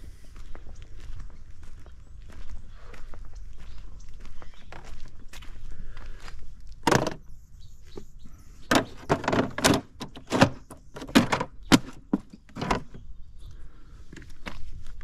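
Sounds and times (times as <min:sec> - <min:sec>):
scuffing footsteps: 0:00.1 - 0:07.2.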